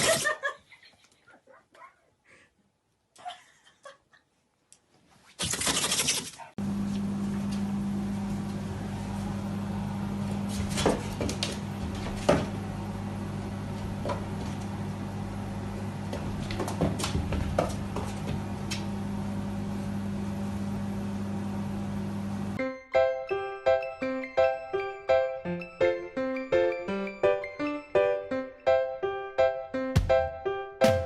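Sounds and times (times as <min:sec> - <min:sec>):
low electrical hum: 0:06.6 - 0:22.6.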